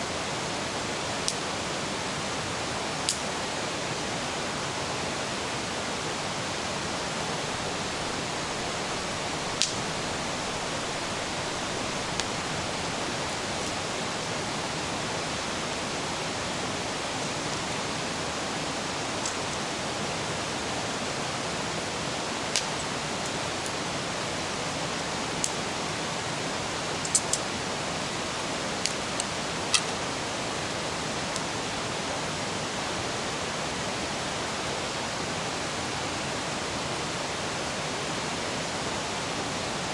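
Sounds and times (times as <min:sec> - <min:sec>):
river rushing: 0:00.0 - 0:39.9
campfire crackling: 0:07.4 - 0:15.6, 0:22.4 - 0:23.8.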